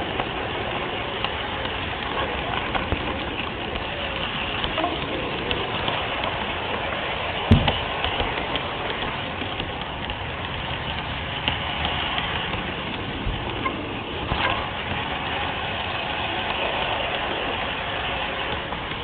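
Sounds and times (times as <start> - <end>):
model train running: 0.0 - 19.0
wheels clicking over rail joints: 0.0 - 19.0.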